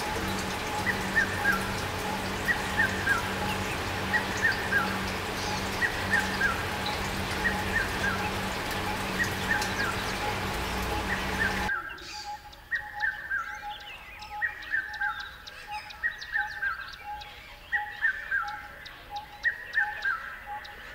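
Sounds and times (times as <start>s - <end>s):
steady hum and hiss: 0.0s - 11.7s
bird calls: 0.0s - 20.9s.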